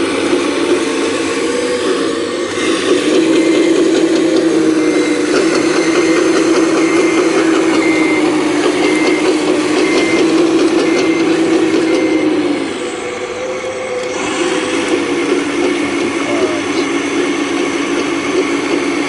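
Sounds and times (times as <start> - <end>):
machine clanking and rattling: 0.0 - 13.2
excavator diesel engine droning: 0.0 - 19.0.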